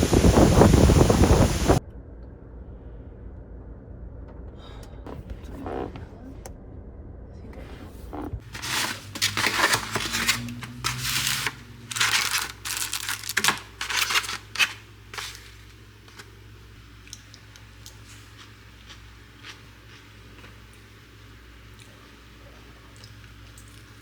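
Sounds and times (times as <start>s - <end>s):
packaging crinkling and tearing: 8.4s - 16.4s.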